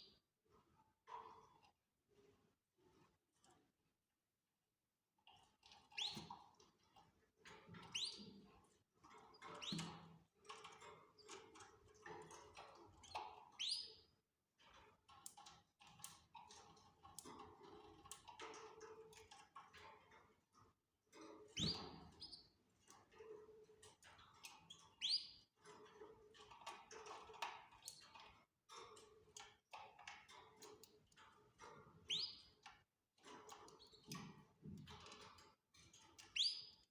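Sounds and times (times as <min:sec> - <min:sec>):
faint clicking and rustling: 0:05.2 - 0:36.9
canaries chirping: 0:07.8 - 0:08.3, 0:13.6 - 0:14.0, 0:25.0 - 0:25.4, 0:32.0 - 0:32.6, 0:36.2 - 0:36.8.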